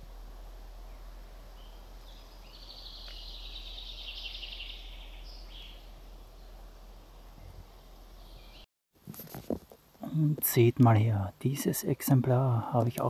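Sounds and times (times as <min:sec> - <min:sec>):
songbird trilling: 0:00.8 - 0:06.6, 0:07.4 - 0:08.6.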